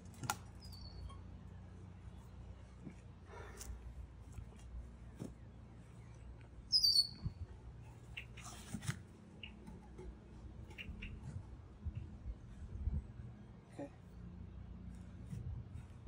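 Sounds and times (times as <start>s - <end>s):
bird chirp: 0.5s - 1.2s, 5.4s - 8.6s, 9.3s - 9.7s, 10.6s - 11.3s.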